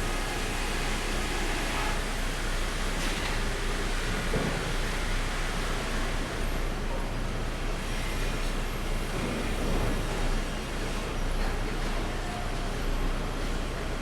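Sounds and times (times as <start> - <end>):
sawmill machinery running: 0.0 - 11.2.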